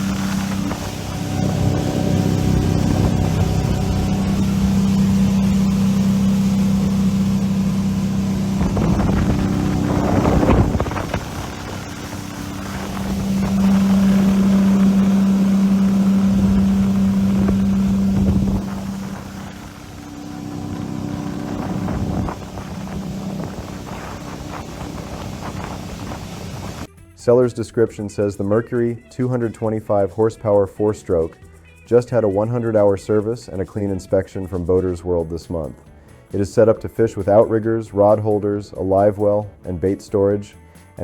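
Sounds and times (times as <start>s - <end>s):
outboard motor humming: 0.0s - 26.9s
wind blowing on microphone: 0.0s - 26.9s.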